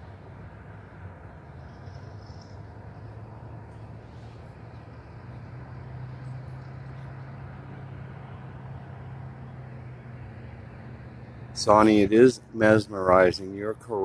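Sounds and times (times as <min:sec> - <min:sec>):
distant traffic hum: 0:00.0 - 0:14.0.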